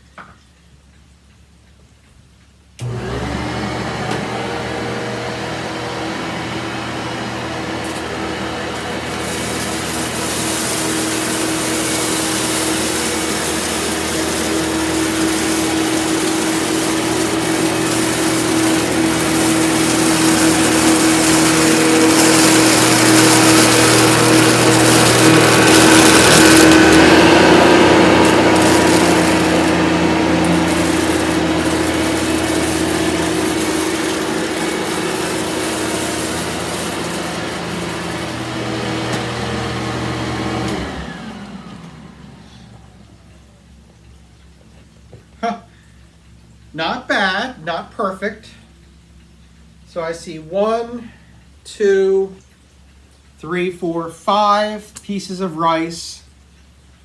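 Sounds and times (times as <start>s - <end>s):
rice being vacuumed: 2.8s - 42.9s
vacuum cleaner motor hum: 2.8s - 43.3s.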